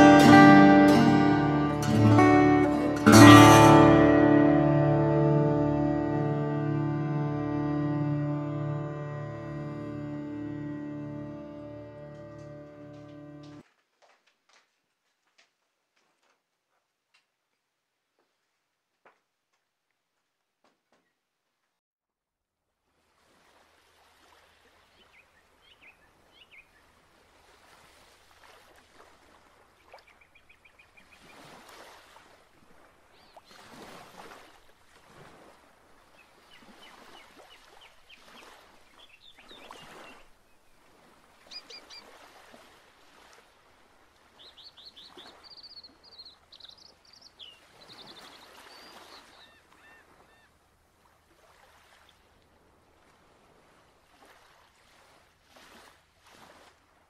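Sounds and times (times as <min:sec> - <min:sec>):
birds chirping: 0:24.9 - 0:27.0, 0:29.8 - 0:31.5, 0:33.1 - 0:33.7, 0:36.1 - 0:42.2, 0:44.2 - 0:50.6.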